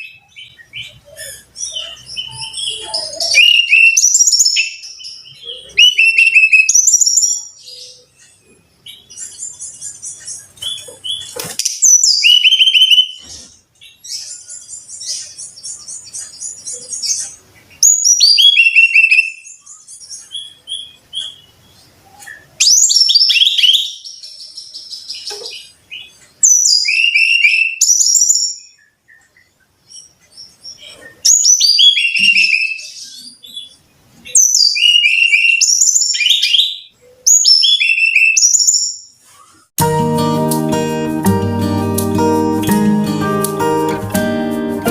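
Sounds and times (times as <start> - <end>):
bird singing whistled notes: 0.0 - 8.1, 9.0 - 13.3, 14.2 - 24.9, 26.4 - 29.5, 30.9 - 39.1.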